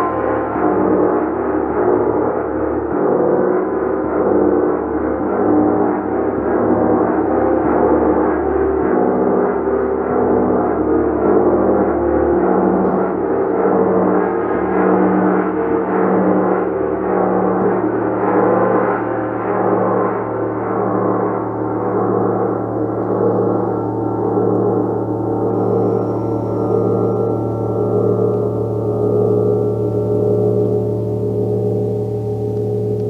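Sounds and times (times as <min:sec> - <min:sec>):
low pulsing tone: 0:00.0 - 0:03.1, 0:16.5 - 0:33.0
gong ringing: 0:21.4 - 0:33.0.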